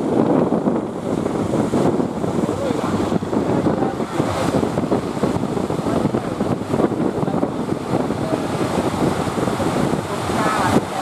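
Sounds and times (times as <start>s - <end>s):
rushing surf: 0.0s - 11.0s
wind buffeting microphone: 0.0s - 11.0s.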